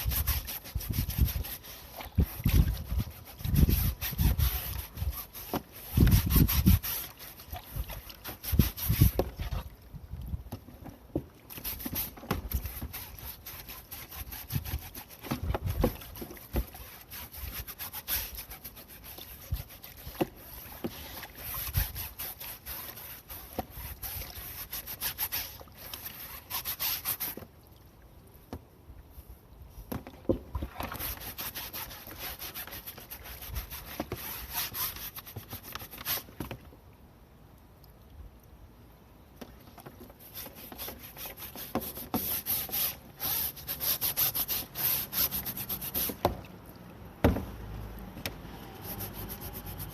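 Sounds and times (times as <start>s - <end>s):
filter being scrubbed: 0.0s - 9.6s, 11.5s - 27.4s, 30.6s - 36.3s, 40.2s - 46.4s, 48.4s - 49.9s.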